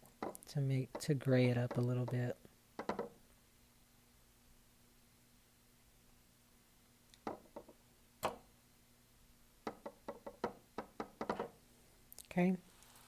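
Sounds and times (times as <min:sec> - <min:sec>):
paintbrush tapping on palette and cup: 0:09.7 - 0:11.6.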